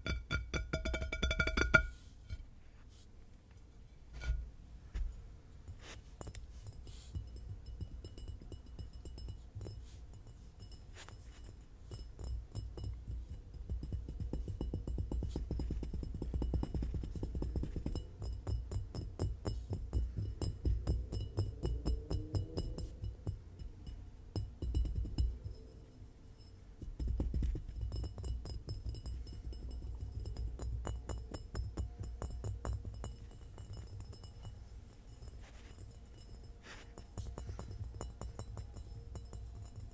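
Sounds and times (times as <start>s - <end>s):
fast tapping on hard objects: 0.0s - 2.0s, 6.2s - 25.8s, 26.8s - 39.9s
wavering ringing tone: 31.9s - 39.9s.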